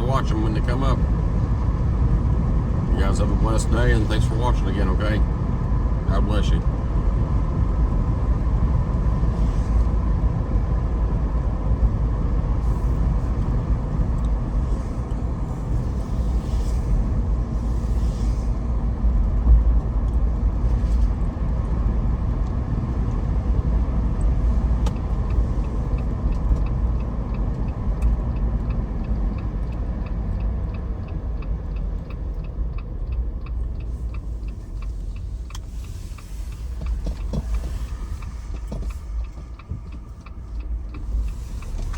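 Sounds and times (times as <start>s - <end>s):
engine and road noise: 0.0s - 41.9s
light regular ticking: 21.2s - 41.9s.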